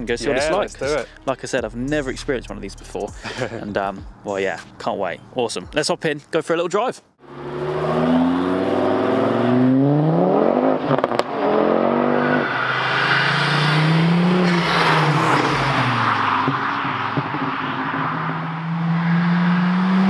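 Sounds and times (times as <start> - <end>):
car engine revving: 7.2 - 20.0
car passing at speed: 7.2 - 20.0.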